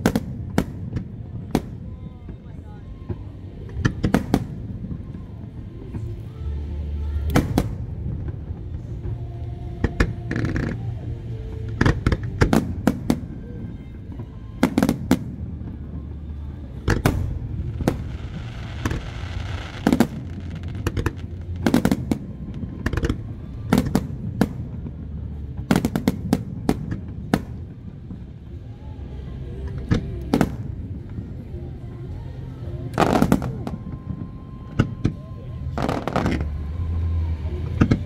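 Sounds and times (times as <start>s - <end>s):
low rumble: 0.0s - 38.0s
fireworks hissing and crackling: 14.6s - 31.2s, 35.6s - 38.0s.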